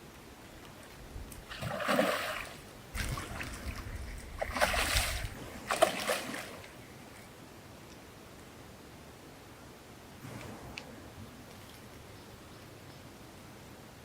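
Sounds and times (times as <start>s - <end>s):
water splashing and sloshing: 0.7s - 7.3s.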